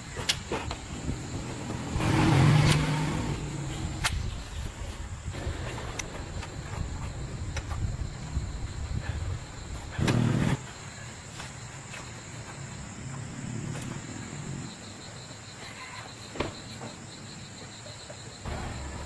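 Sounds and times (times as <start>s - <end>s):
loud rough noise: 1.0s - 4.1s.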